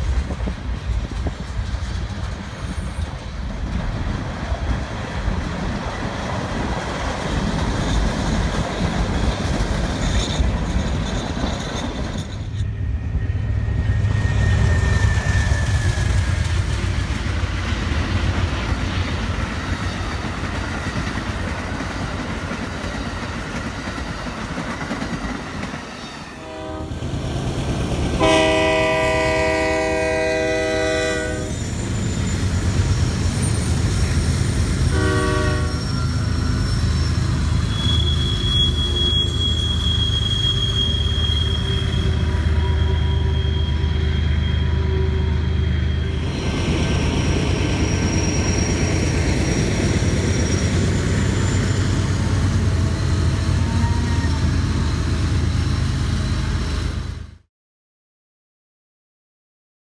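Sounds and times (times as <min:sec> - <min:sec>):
train wheels rumbling on rails: 0:00.0 - 0:57.4
high wheel squeal: 0:02.4 - 0:03.4, 0:10.0 - 0:16.7, 0:30.5 - 0:57.2
train air horn blasts: 0:26.4 - 0:27.1, 0:28.1 - 0:31.6, 0:34.9 - 0:36.6.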